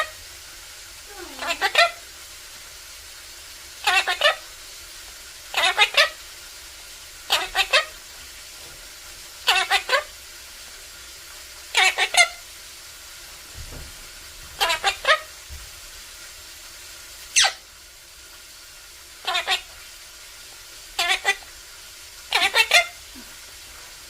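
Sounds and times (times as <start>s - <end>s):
faint steady hiss: 0.0s - 24.0s
parrot calling: 1.0s - 2.1s, 3.7s - 4.6s, 5.5s - 6.3s, 7.2s - 8.1s, 9.4s - 10.2s, 11.7s - 12.5s, 14.5s - 15.4s, 17.1s - 17.7s, 19.2s - 23.5s.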